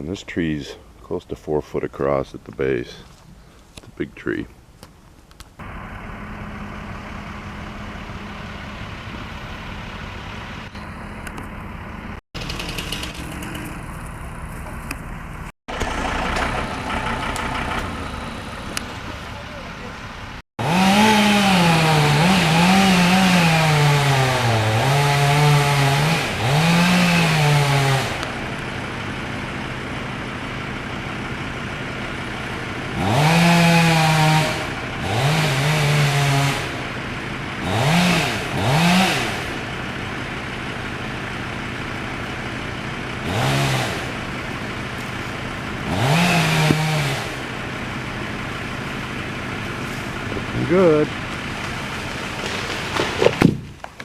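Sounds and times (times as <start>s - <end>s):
chainsaw revving and cutting: 12.4s - 13.6s, 20.6s - 41.0s, 43.1s - 53.6s.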